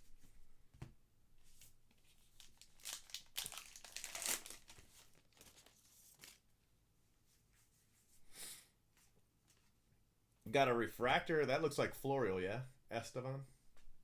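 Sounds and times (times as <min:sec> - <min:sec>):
wrapper crinkling and tearing: 0:02.2 - 0:06.4.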